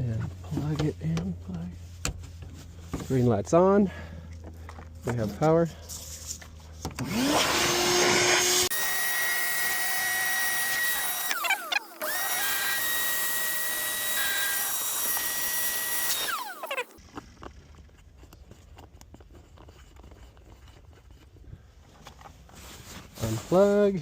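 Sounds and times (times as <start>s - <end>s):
electric air pump whining: 6.9s - 17.0s.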